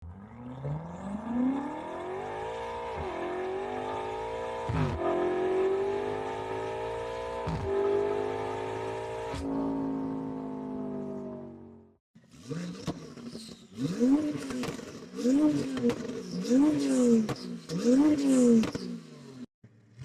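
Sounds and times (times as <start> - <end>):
car engine accelerating through gears: 0.0 - 11.5.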